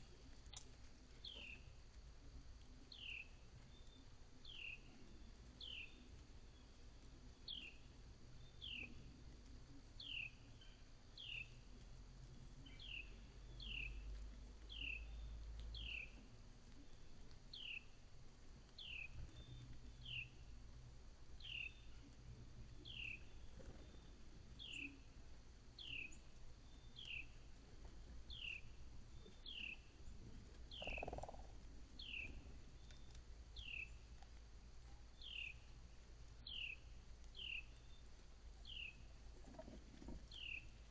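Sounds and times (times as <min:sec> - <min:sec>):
small animal high chirp: 0:30.8 - 0:31.4.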